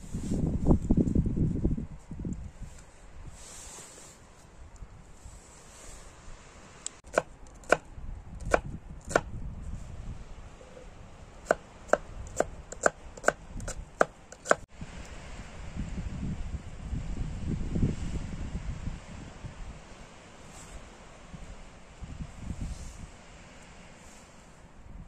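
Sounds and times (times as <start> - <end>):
wood chopping blows: 7.1 - 9.3.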